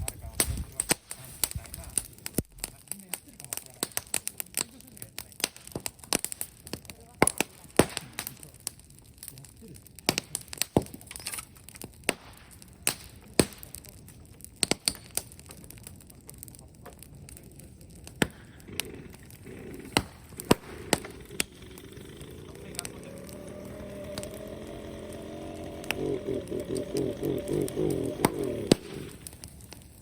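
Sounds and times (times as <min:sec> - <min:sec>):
bonfire crackling and popping: 0:00.0 - 0:30.0.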